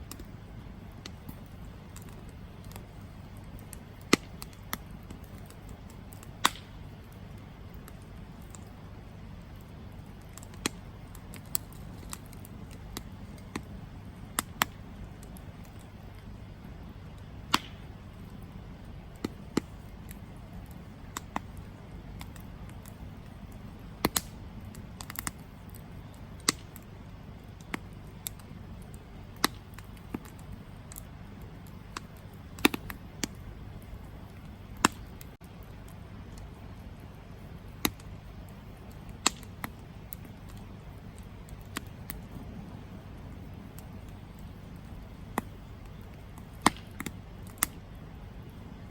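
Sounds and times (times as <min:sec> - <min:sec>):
burning wood crackling and popping: 0:00.0 - 0:48.9
campfire flames rumbling: 0:00.0 - 0:48.9.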